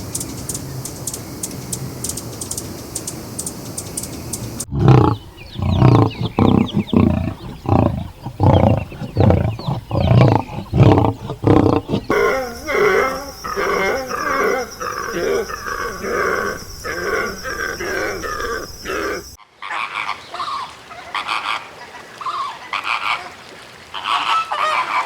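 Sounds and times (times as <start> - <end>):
busy animal sounds: 4.1 - 21.6
large animal deep calls: 4.6 - 19.4.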